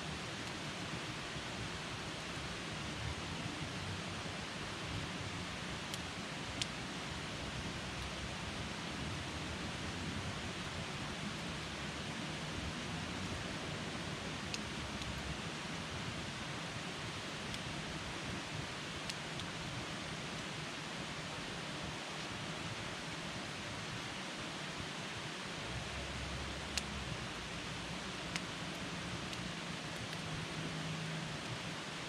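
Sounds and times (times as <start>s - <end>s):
campfire crackling and popping: 5.8s - 8.2s, 13.6s - 15.6s, 25.9s - 31.7s.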